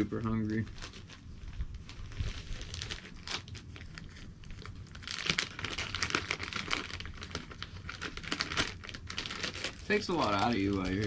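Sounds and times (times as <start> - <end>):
crinkly material rustling: 0.0 - 11.0.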